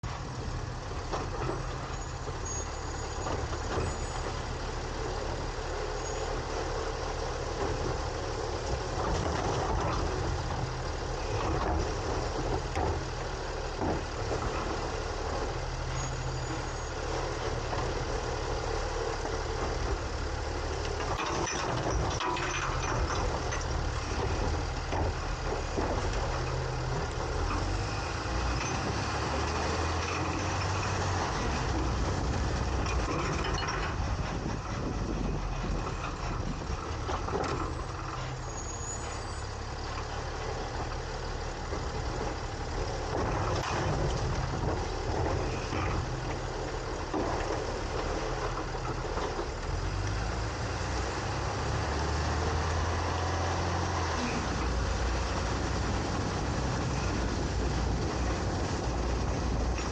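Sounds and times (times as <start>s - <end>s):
garbage truck engine running: 0.0s - 59.9s
knocks and rattles: 7.5s - 16.7s, 17.5s - 38.5s, 39.8s - 50.5s.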